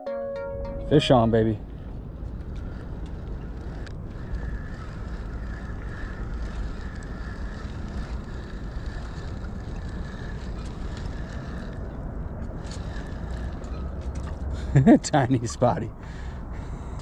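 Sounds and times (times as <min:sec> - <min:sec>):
wind rumbling on microphone: 0:01.2 - 0:17.0
fishing reel whine: 0:01.6 - 0:14.4
light ticks: 0:02.4 - 0:05.2.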